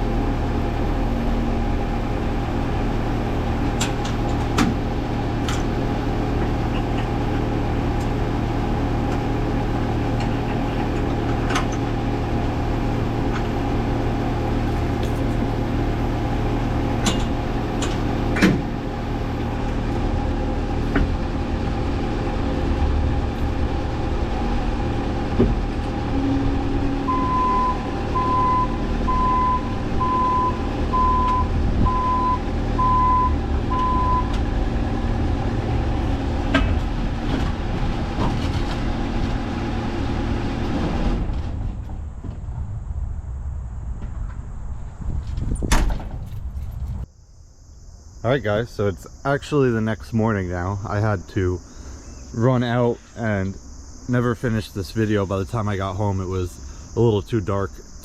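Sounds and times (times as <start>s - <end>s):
machine engine running: 0.0s - 44.0s
reversing alarm beeping: 26.1s - 34.4s.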